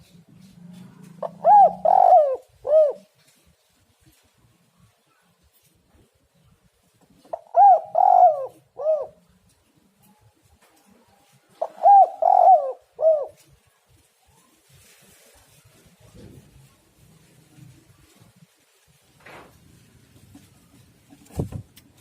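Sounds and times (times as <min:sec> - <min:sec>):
dove cooing: 0:00.0 - 0:03.4, 0:07.2 - 0:09.4, 0:10.8 - 0:13.7.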